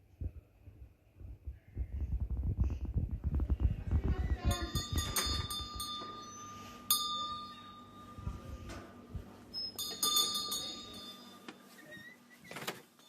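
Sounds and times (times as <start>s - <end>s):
bell ringing: 4.4s - 11.8s.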